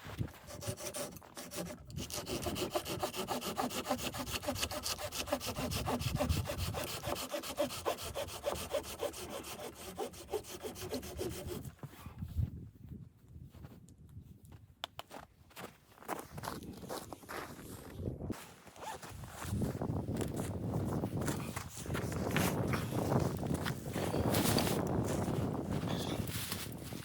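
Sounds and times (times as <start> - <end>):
hand saw cutting wood: 0.4 - 11.7.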